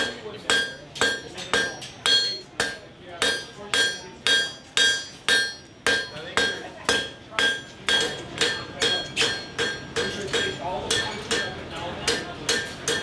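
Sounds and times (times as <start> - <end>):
hammer striking metal on anvil: 0.0 - 13.0.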